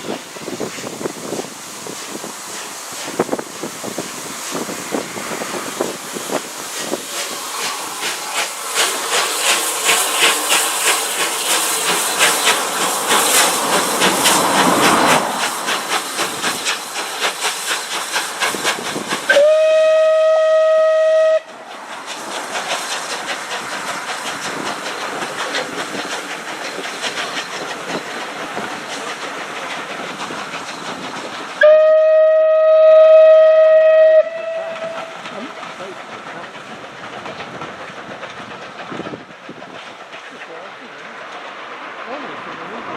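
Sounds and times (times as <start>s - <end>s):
steam locomotive chugging: 0.0s - 42.9s
steam whistle blast: 19.3s - 21.5s, 31.6s - 35.1s.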